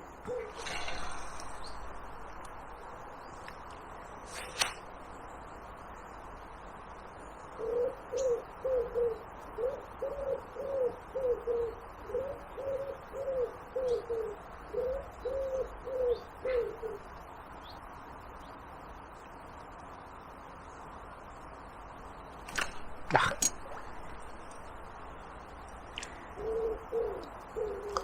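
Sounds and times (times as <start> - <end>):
pigeon cooing: 0.2 - 2.1, 7.6 - 17.1, 26.0 - 28.0.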